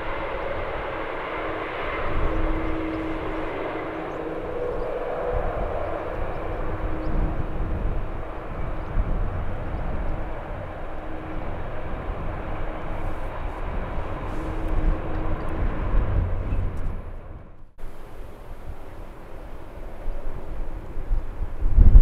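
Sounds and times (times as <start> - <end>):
jet engines whining: 0.0 - 22.0
wind buffeting microphone: 0.0 - 22.0.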